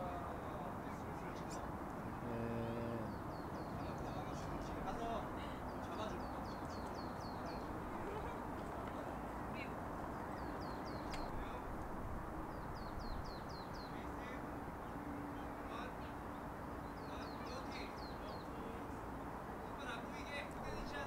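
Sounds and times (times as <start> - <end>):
bird chirping: 1.4 - 8.8, 10.0 - 11.6, 12.4 - 18.6.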